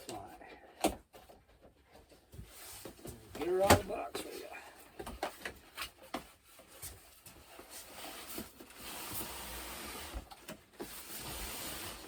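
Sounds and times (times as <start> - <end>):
cardboard scraping: 7.5 - 12.0.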